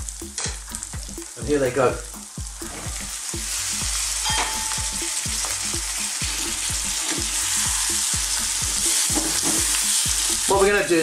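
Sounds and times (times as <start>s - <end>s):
potatoes sizzling in frying pan: 0.0s - 11.0s.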